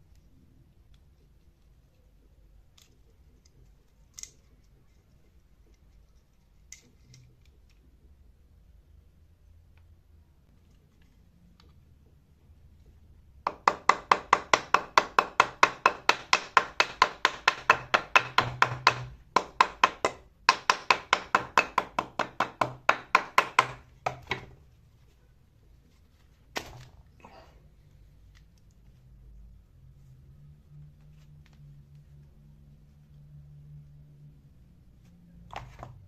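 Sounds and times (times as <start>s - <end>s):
rapid sharp knocks: 13.5s - 24.5s.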